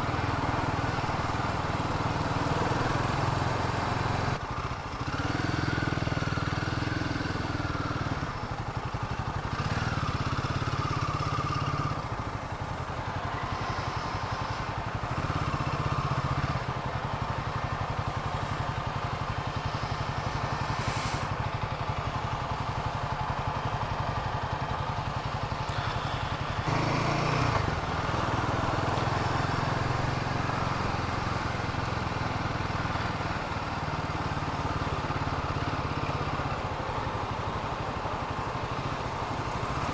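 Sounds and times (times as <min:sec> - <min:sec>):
motorcycle engine revving: 0:05.0 - 0:08.3, 0:09.2 - 0:21.6, 0:25.0 - 0:36.7.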